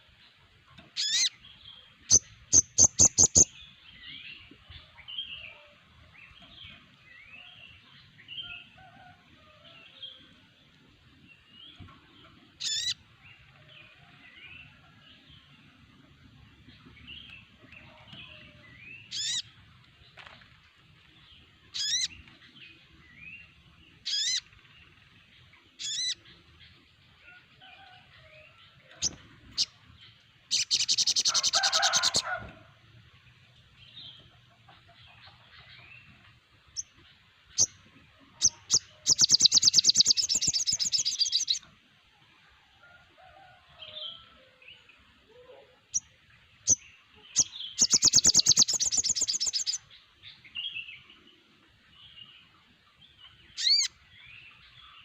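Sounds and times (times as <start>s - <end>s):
birds twittering: 0.8s - 5.6s, 11.4s - 13.6s, 16.4s - 20.4s, 21.3s - 26.9s, 28.5s - 32.6s, 33.8s - 41.8s, 45.8s - 52.5s, 53.1s - 55.0s.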